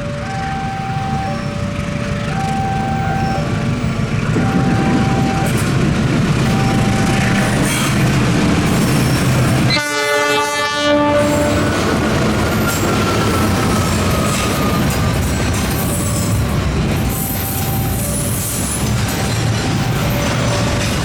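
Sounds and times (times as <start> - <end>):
locomotive horn: 0.0 - 5.5, 9.6 - 12.0
train wheels rumbling on rails: 0.0 - 21.0.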